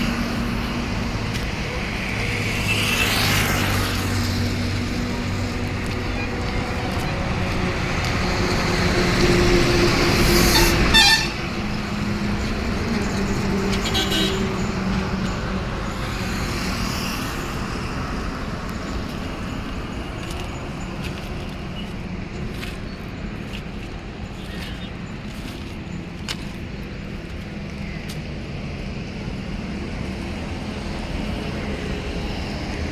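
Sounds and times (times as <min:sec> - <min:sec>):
diesel engine running: 0:00.0 - 0:27.8
short horn toots: 0:10.5 - 0:11.4.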